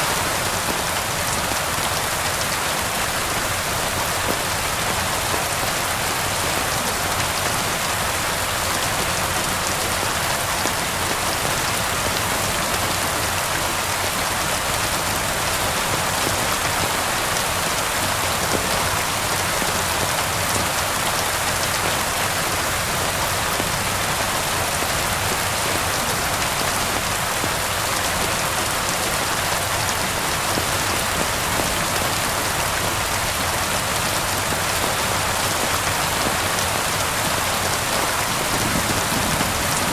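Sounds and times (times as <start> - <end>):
steady rain on hard surfaces: 0.0 - 39.9.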